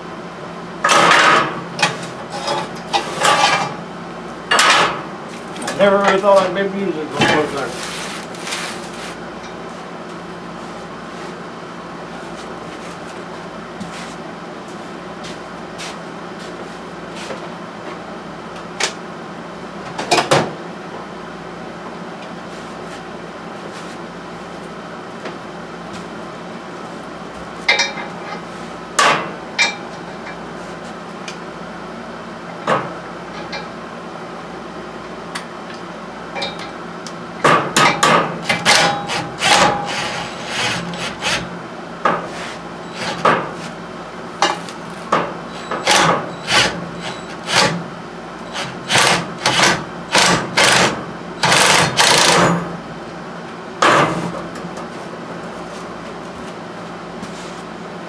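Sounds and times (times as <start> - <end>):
steady background hum: 0.0 - 58.0
hand tools clinking on metal: 5.3 - 6.4.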